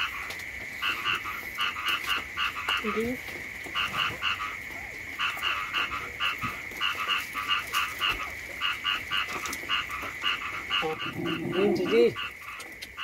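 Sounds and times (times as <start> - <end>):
frogs croaking in chorus: 0.0 - 13.0.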